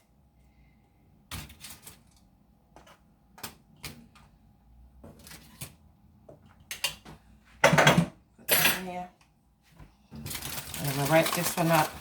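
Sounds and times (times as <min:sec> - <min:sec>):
aluminum foil crinkling: 0:10.1 - 0:12.0.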